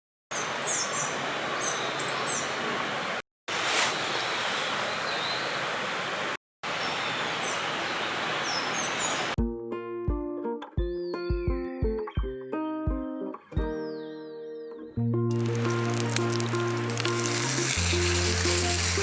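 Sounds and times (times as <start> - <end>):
small birds chirping: 0.3 - 2.6, 6.8 - 9.4.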